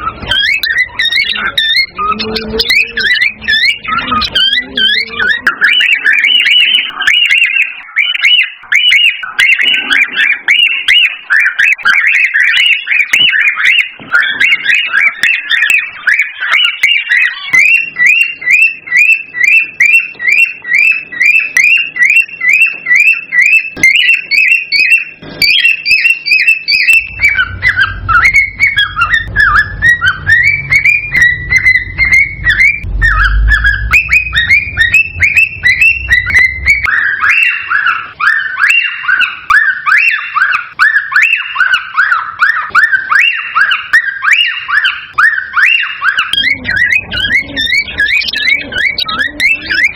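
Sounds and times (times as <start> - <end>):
cockatiels whistling and chirping: 0.0 - 49.9
low rumble: 27.0 - 36.9.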